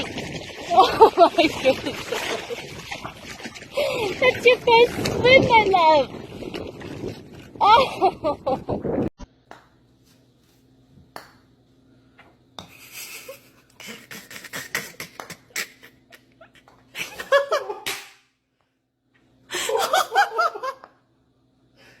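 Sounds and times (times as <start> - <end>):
person laughing: 12.8 - 17.9, 19.5 - 20.9.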